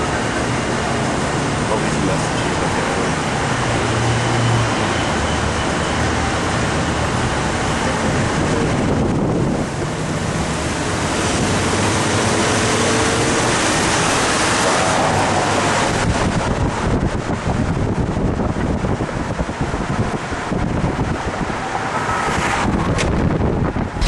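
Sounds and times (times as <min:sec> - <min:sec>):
wind and road noise: 0:00.0 - 0:24.0.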